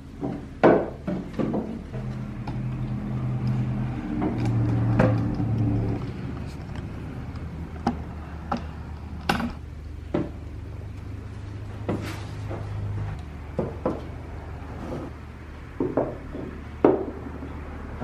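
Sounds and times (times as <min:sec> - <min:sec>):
steady low hum: 0:00.0 - 0:18.0
decor items knocking on shelves: 0:13.5 - 0:14.2, 0:15.8 - 0:17.4.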